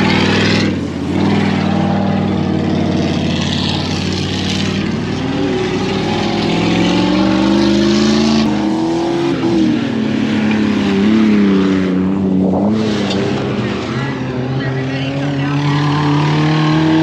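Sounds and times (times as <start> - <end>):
truck engines revving: 0.0 - 17.0.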